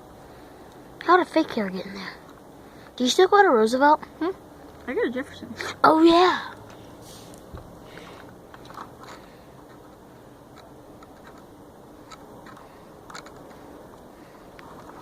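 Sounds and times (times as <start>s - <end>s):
faint clicks and ticks: 8.0s - 15.0s.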